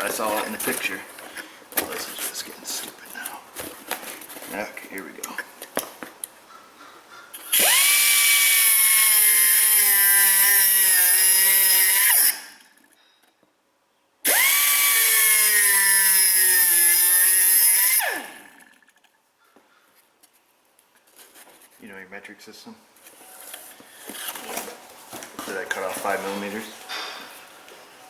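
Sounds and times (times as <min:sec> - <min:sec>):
pneumatic cut-off wheel whining: 0:07.4 - 0:12.8, 0:14.2 - 0:18.8, 0:23.4 - 0:24.5.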